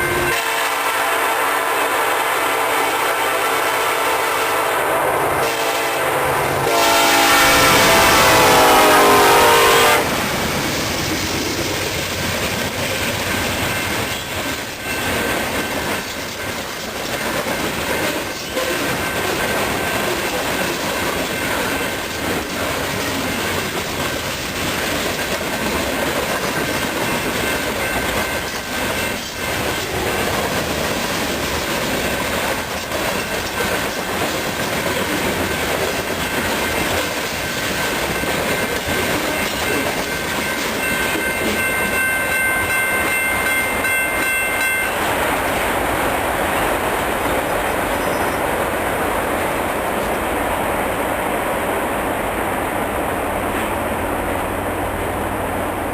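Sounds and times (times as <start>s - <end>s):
freight train rumble: 0.0s - 55.9s
train wheels clacking over rail joints: 10.5s - 45.2s.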